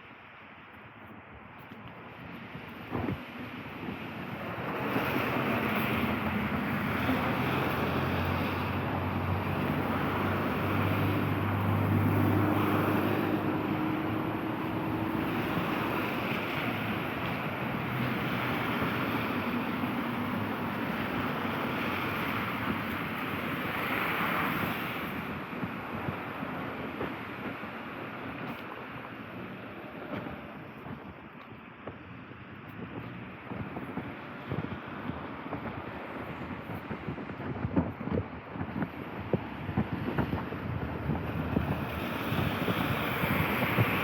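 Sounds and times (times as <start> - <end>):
tyres hissing on wet asphalt: 2.5 - 30.9, 38.5 - 44.0
vehicle engine hum: 2.5 - 44.0.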